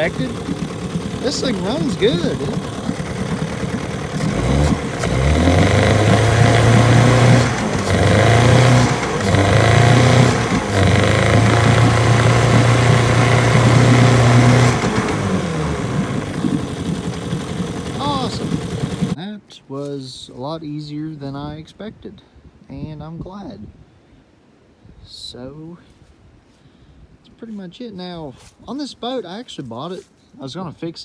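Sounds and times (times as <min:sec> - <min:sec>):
outboard motor running: 0:00.0 - 0:19.2.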